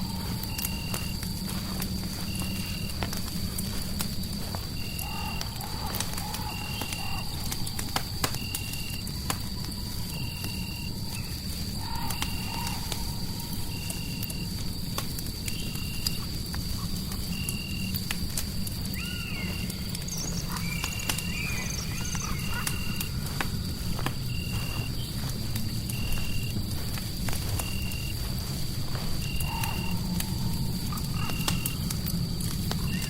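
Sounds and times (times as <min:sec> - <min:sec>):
crackling fireplace: 0:00.0 - 0:33.0
animal-like calls: 0:18.9 - 0:23.4.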